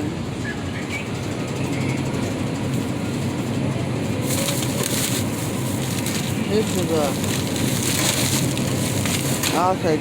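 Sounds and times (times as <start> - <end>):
mechanical rattling and rumble: 0.0 - 10.0
crackling handling noise: 2.6 - 10.0.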